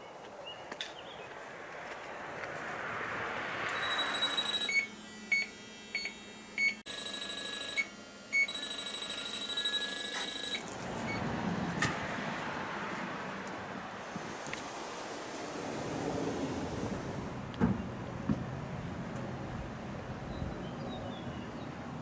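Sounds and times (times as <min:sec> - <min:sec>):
steady rushing noise: 0:01.2 - 0:03.8, 0:10.8 - 0:20.1.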